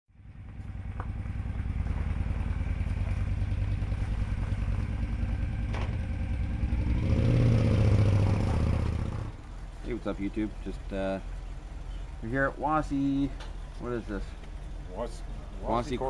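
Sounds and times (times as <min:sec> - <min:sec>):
motorcycle engine running: 0:00.1 - 0:12.2.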